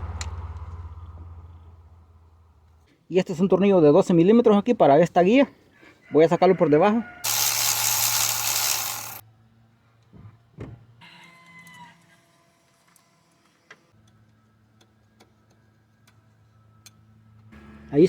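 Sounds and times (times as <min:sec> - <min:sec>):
power ratchet whirring: 0:07.2 - 0:09.2.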